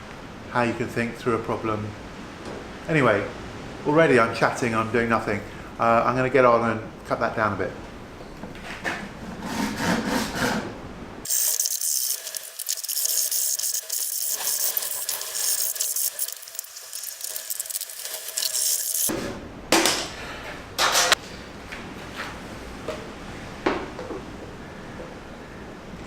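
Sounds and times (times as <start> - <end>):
harsh cutting noise: 11.3 - 19.1.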